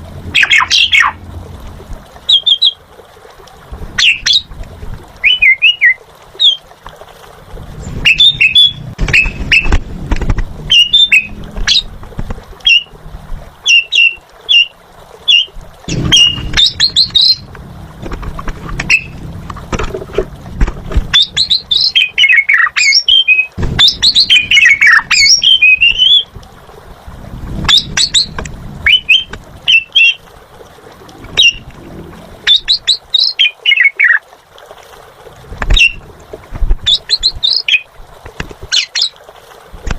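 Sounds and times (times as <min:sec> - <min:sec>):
starling singing: 0:00.3 - 0:01.2, 0:05.2 - 0:06.6, 0:08.0 - 0:09.7, 0:10.7 - 0:11.9, 0:15.3 - 0:17.5, 0:18.8 - 0:19.2, 0:21.1 - 0:26.3, 0:27.7 - 0:30.2, 0:31.4 - 0:31.7, 0:32.4 - 0:34.2
low rumble: 0:15.9 - 0:21.3, 0:26.3 - 0:32.5.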